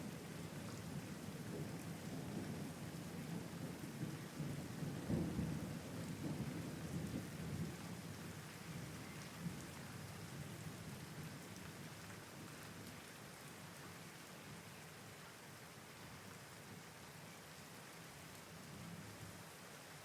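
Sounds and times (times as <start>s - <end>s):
low rumble of thunder: 0.0s - 12.9s
steady rain falling: 0.0s - 20.0s.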